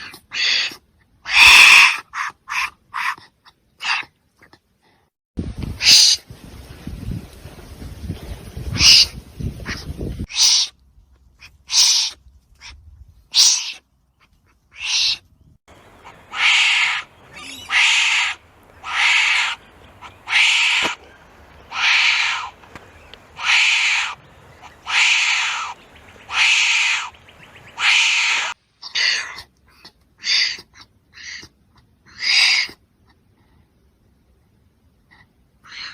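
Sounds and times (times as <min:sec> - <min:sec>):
wombat harsh hoarse calls: 0:00.0 - 0:04.1, 0:15.9 - 0:21.0, 0:21.7 - 0:22.6, 0:23.4 - 0:27.2, 0:27.8 - 0:32.8.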